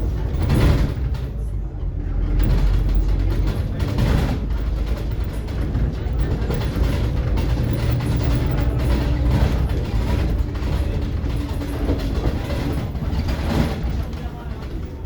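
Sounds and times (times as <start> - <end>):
bus body knocks: 0.0 - 15.0
bus engine and road drone: 0.0 - 15.0.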